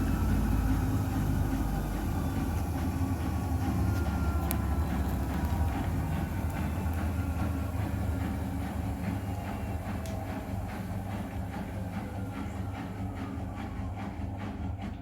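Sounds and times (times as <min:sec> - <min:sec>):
drum clicking: 0:00.0 - 0:14.5
washing machine rumbling: 0:00.0 - 0:15.0.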